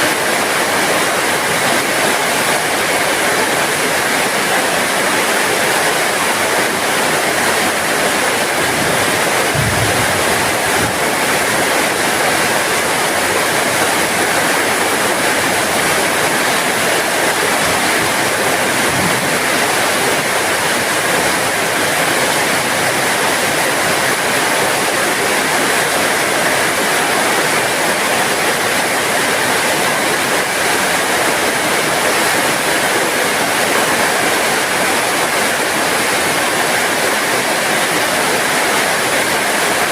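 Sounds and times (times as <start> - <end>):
heavy rain hiss: 0.0 - 39.9
low thud: 9.5 - 11.0.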